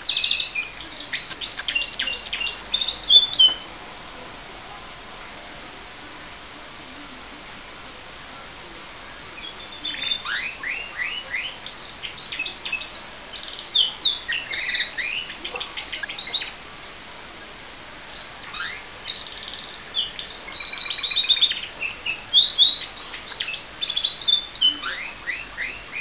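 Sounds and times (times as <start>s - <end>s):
canary singing trills: 0.0s - 3.7s, 9.4s - 16.6s, 18.1s - 26.0s.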